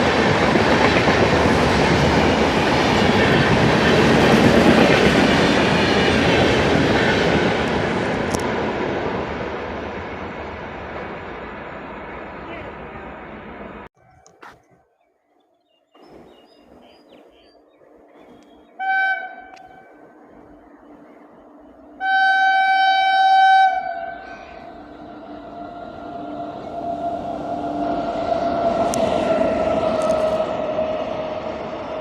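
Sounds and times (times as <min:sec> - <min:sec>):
train rumbling on track: 0:00.0 - 0:14.0, 0:16.0 - 0:32.0
locomotive horn blasts: 0:18.8 - 0:19.9, 0:22.0 - 0:27.2.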